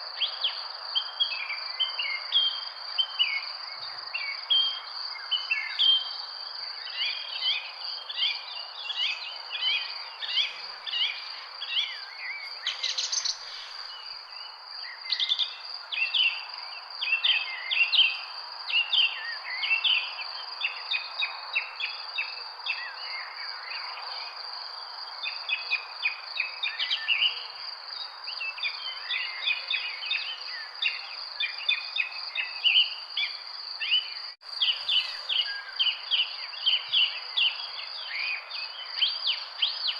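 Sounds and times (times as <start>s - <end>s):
small birds chirping: 0.0s - 18.2s, 24.9s - 39.9s
insects droning: 0.0s - 39.9s.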